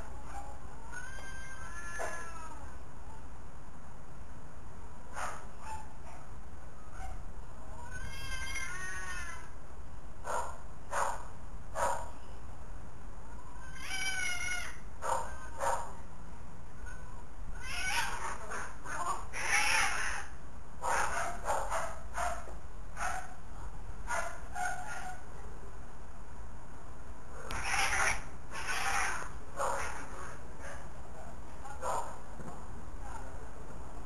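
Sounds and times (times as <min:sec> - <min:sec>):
cats yowling and meowing: 0:00.2 - 0:02.7, 0:07.1 - 0:09.5, 0:13.5 - 0:15.7, 0:16.9 - 0:21.2, 0:27.5 - 0:30.4.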